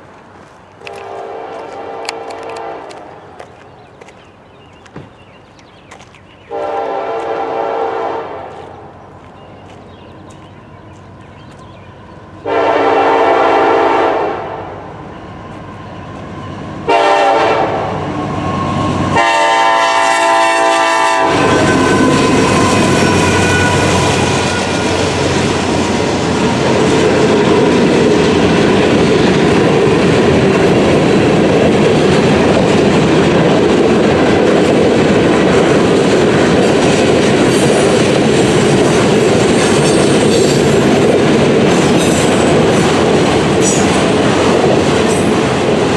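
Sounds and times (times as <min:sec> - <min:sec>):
wheels clacking over rail joints: 0:00.0 - 0:06.9, 0:21.4 - 0:45.9
train rumbling past: 0:00.0 - 0:45.9
locomotive horn blasts: 0:00.9 - 0:03.1, 0:06.5 - 0:08.5, 0:12.4 - 0:15.4, 0:16.8 - 0:18.0, 0:18.6 - 0:25.2.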